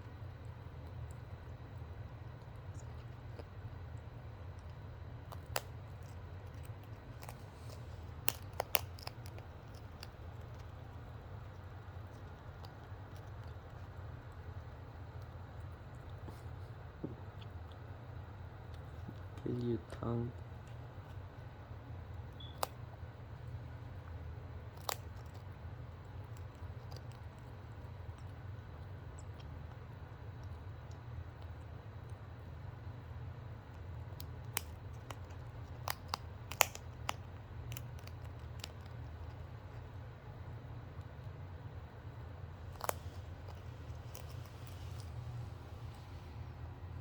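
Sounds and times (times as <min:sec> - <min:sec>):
steady low hum: 0:00.0 - 0:47.0
cockatoo beak clicks: 0:22.4 - 0:22.8, 0:34.2 - 0:39.0.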